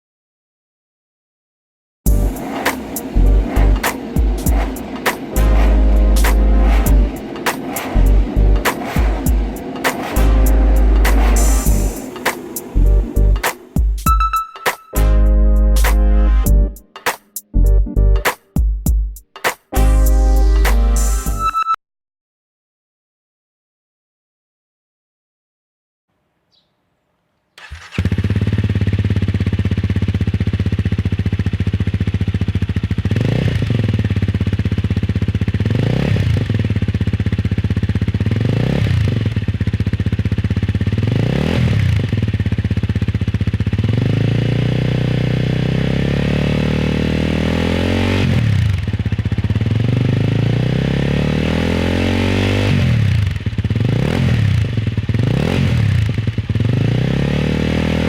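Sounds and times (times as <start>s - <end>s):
motorcycle engine revving: 2.1s - 14.1s, 27.6s - 58.0s.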